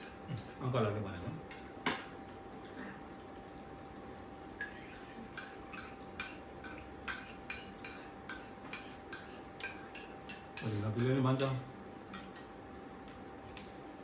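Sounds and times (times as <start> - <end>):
faint steady hum: 0.0 - 14.0
plates and cutlery clinking: 4.6 - 11.5.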